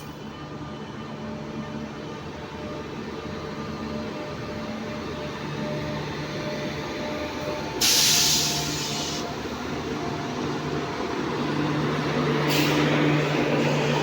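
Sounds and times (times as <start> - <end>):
train rumbling: 0.0 - 14.0
loud hiss of air: 7.8 - 9.4, 12.5 - 12.9.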